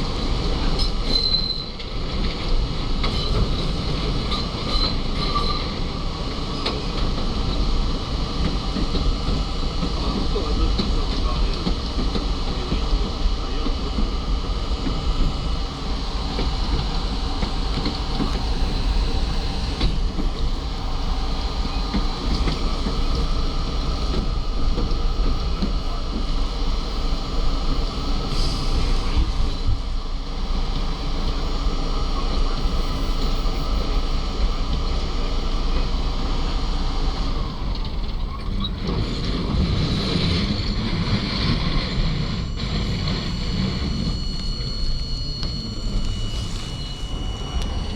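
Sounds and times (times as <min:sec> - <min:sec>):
subway train wheels rumbling: 0:00.0 - 0:47.9
rushing wind-like noise: 0:36.2 - 0:47.9.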